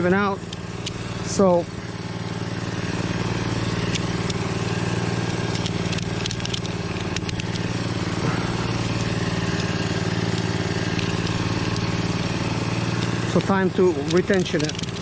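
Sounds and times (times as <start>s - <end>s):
engine idling: 0.0s - 15.0s
light clicks and crackles: 5.4s - 7.7s, 12.9s - 15.0s.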